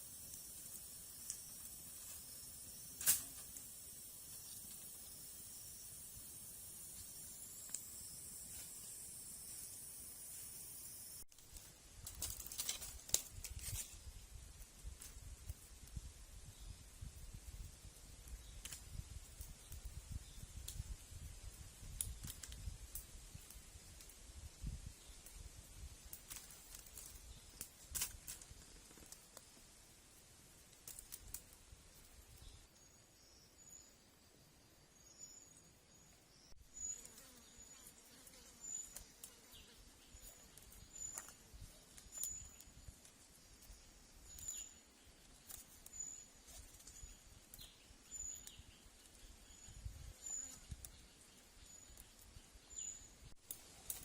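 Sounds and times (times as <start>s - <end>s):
small bird chirping: 34.9s - 54.0s.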